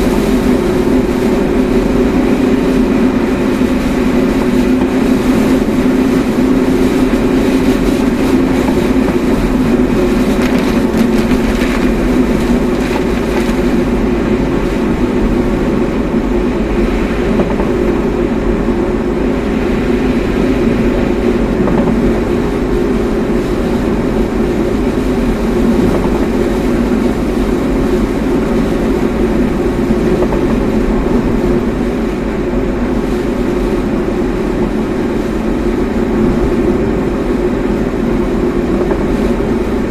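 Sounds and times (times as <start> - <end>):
car engine and road noise: 0.0 - 39.9
tyre rumble: 9.2 - 14.0.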